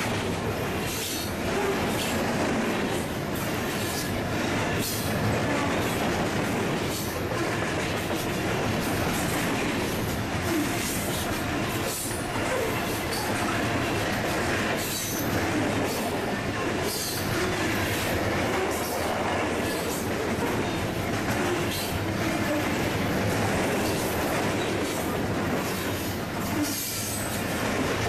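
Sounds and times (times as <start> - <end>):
clacks over rail joints: 0.0 - 28.0
train wheels rumbling on rails: 0.0 - 28.0.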